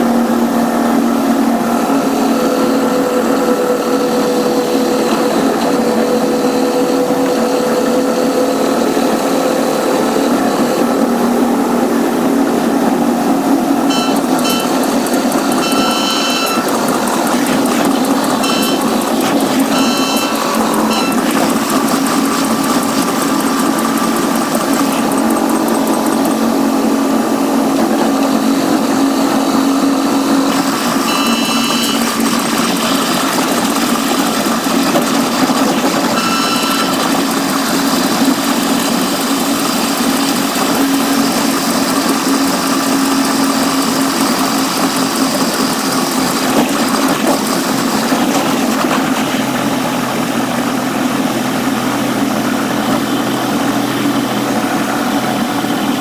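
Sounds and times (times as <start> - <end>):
train running noise: 0.0 - 56.0
high-pitched tones: 13.8 - 24.1, 29.8 - 33.0, 36.0 - 37.1.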